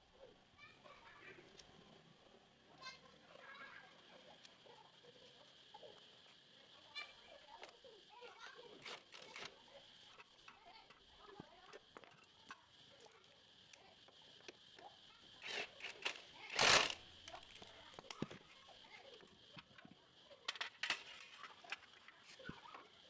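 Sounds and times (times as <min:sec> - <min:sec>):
metallic clicks of hand tools: 0:15.5 - 0:17.0.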